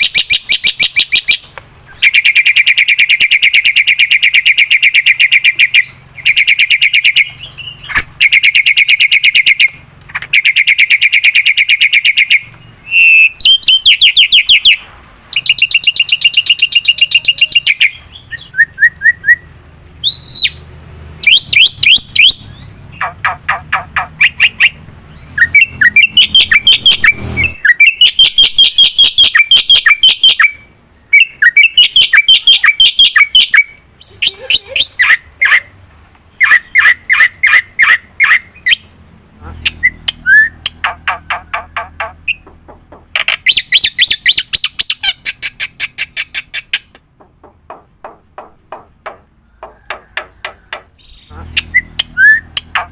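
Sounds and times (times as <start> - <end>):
whistled sweeps: 24.3 - 29.5.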